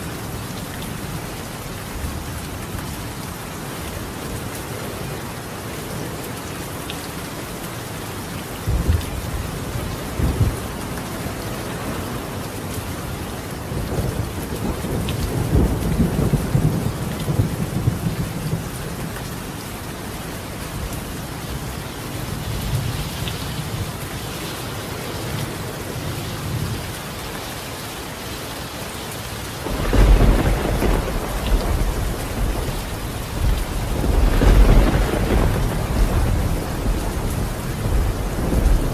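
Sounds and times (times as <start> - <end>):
rain on a tile roof: 0.0 - 38.9
thunder rumbling: 13.7 - 18.7, 29.6 - 38.9.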